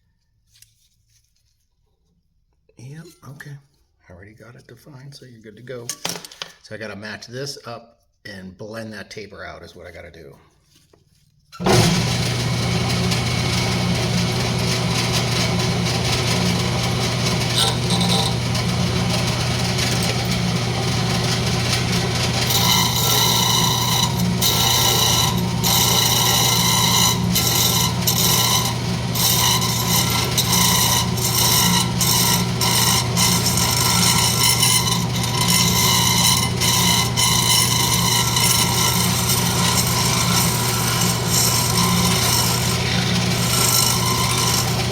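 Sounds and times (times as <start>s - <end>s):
wood lathe humming: 11.6s - 44.9s
turning tool rasping on wood: 14.0s - 44.9s.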